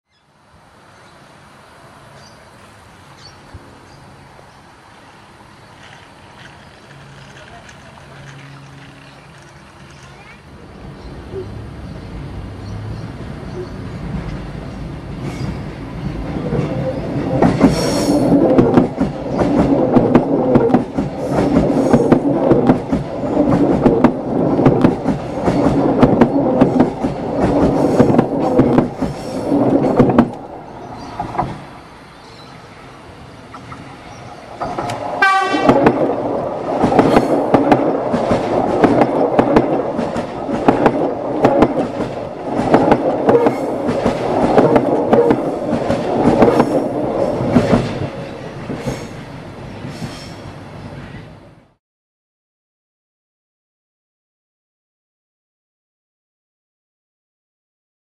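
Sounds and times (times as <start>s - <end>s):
trains rumbling over bridge: 0.3s - 51.8s
wheels knocking on bridge: 18.5s - 30.5s, 34.6s - 48.8s.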